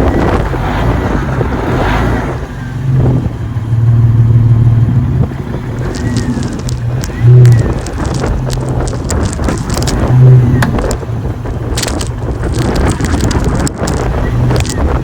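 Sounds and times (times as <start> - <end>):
vehicle engine and road rumble: 0.0 - 15.0.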